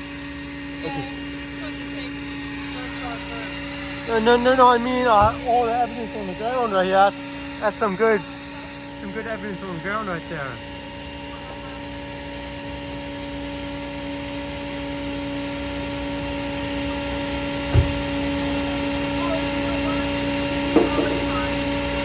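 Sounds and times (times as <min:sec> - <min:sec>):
vehicle engine idling: 0:00.0 - 0:22.0
low thump: 0:05.1 - 0:05.6, 0:17.7 - 0:18.2.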